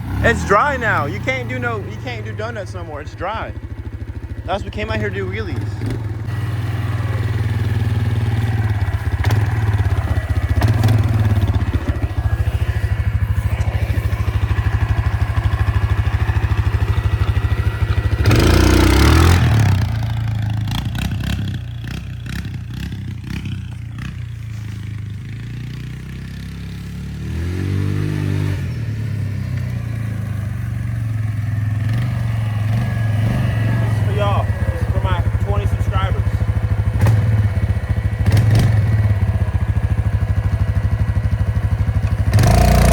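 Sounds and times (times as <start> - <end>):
motorbike engine running: 0.0 - 42.9.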